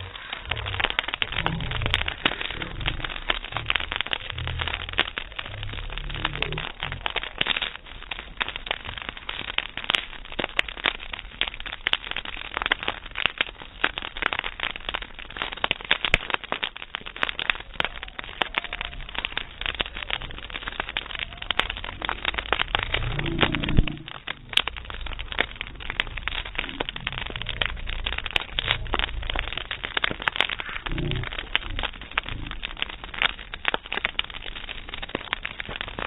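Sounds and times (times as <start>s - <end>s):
campfire crackling and popping: 0.0s - 36.0s.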